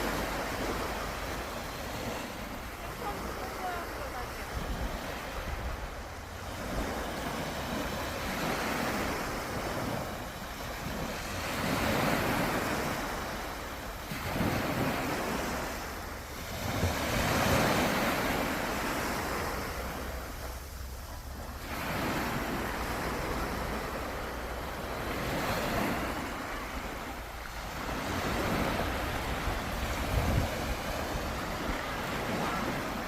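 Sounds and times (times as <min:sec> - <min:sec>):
sea waves breaking: 0:00.0 - 0:33.0
wind rumbling on microphone: 0:25.4 - 0:33.0.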